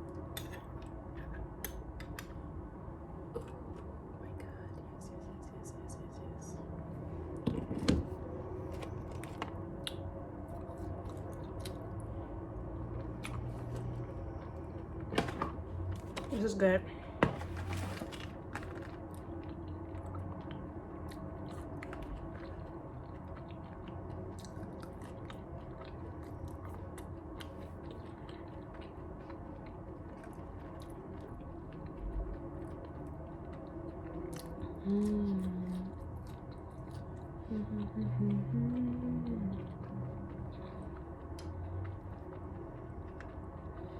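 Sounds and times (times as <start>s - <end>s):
wet chewing with crunches: 7.3s - 15.0s, 17.6s - 43.9s
person humming: 34.8s - 36.0s, 37.5s - 40.2s.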